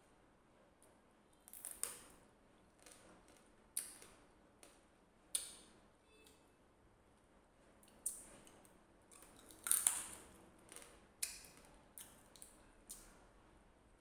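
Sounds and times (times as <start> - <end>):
crunching while eating: 7.8 - 13.1.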